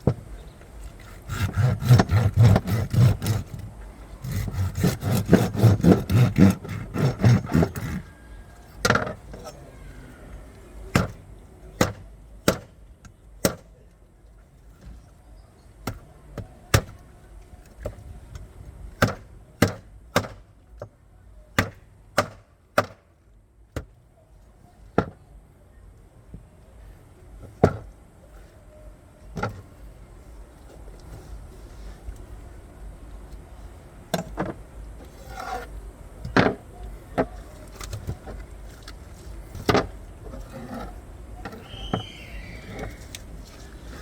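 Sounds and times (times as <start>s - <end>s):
knife chopping fish: 1.0s - 3.6s, 4.2s - 8.0s.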